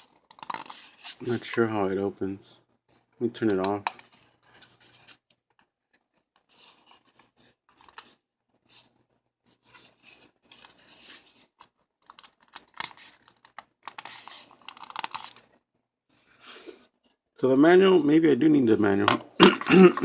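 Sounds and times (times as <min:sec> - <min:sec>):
paper rustling: 0:00.0 - 0:01.8, 0:03.6 - 0:17.2
plastic parts clicking: 0:12.0 - 0:15.4.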